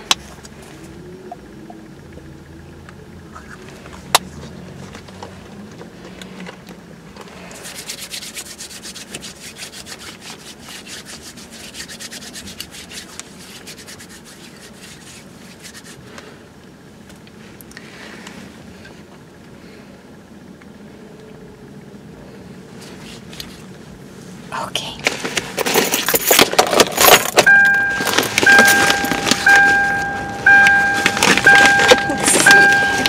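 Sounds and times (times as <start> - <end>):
hands rubbing together: 7.5 - 16.2.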